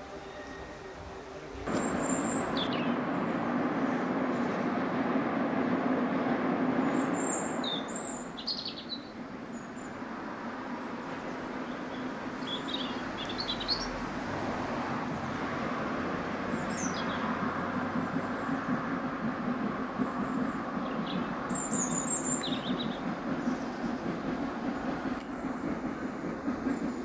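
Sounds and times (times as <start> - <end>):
songbirds chirping: 0.0 - 3.6, 6.1 - 14.4, 16.3 - 26.0
distant train rumble: 0.0 - 27.0.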